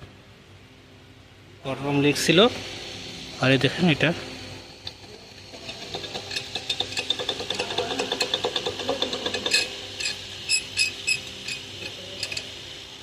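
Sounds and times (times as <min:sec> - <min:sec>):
water pump metallic clicking: 0:04.8 - 0:12.6.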